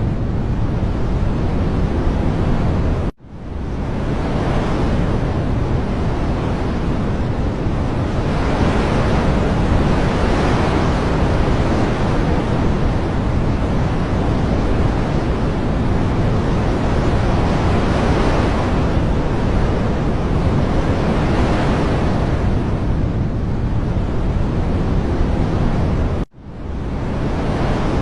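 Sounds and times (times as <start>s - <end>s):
rushing water: 3.7s - 26.2s.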